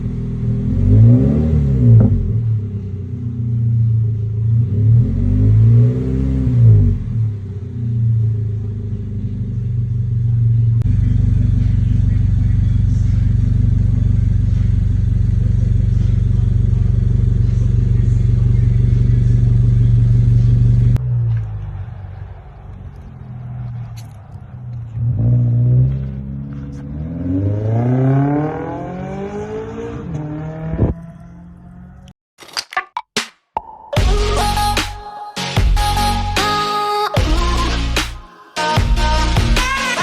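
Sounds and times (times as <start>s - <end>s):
car engine idling: 0.0s - 5.7s, 6.7s - 26.8s
engine revving: 0.0s - 9.5s, 10.8s - 32.1s
engine drone: 0.0s - 32.1s.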